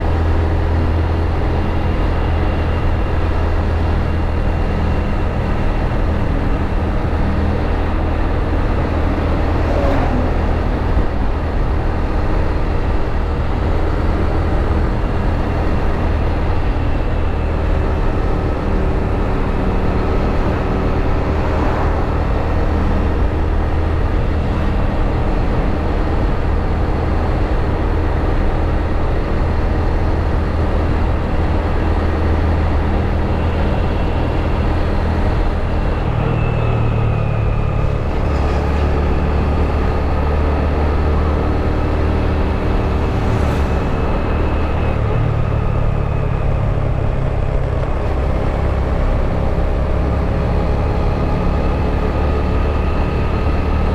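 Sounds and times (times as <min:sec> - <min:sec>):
motorbike engine drone: 0:00.0 - 0:53.9
wind and road noise: 0:00.0 - 0:53.9
low rumble: 0:02.0 - 0:33.4, 0:34.2 - 0:49.7
falling sweeps: 0:41.7 - 0:45.4.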